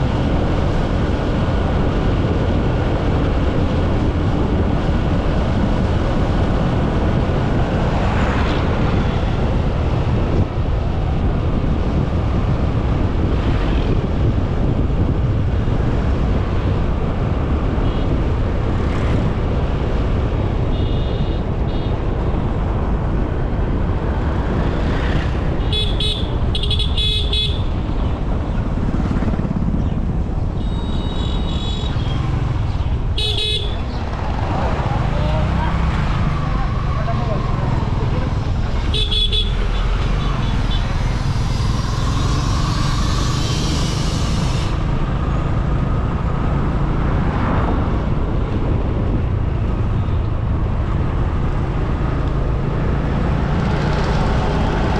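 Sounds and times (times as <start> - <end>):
road traffic noise: 0.0 - 54.9
vehicle horn honking: 25.6 - 27.7, 30.6 - 32.1, 33.2 - 33.8, 38.9 - 40.8.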